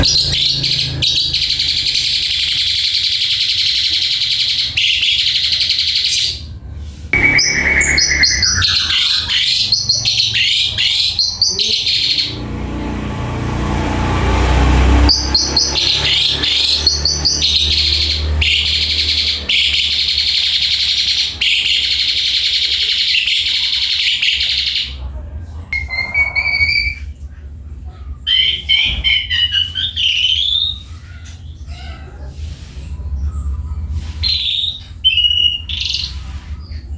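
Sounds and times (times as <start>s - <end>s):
starling singing chattering song: 0.0s - 25.0s, 25.7s - 27.2s.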